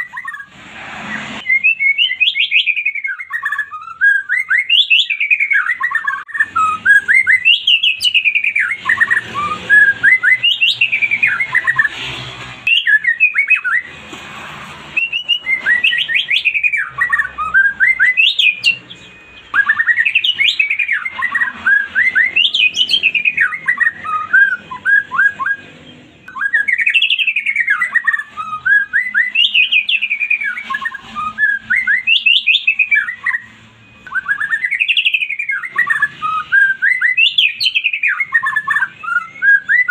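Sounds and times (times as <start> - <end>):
songbird singing: 1.1 - 13.9, 14.9 - 39.9.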